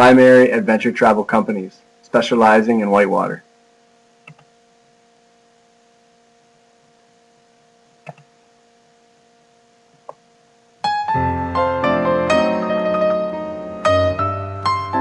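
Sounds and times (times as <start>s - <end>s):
faint electrical hum: 0.0s - 15.0s
soft clicks: 4.2s - 4.5s, 8.0s - 8.3s
piano music: 10.8s - 15.0s.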